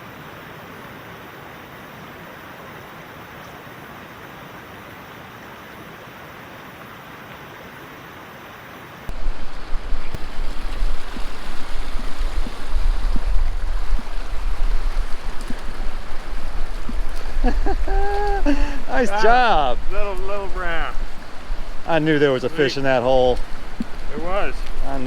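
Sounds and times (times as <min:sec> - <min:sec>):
creek water rushing: 0:00.0 - 0:25.0
wind buffeting microphone: 0:09.2 - 0:25.0.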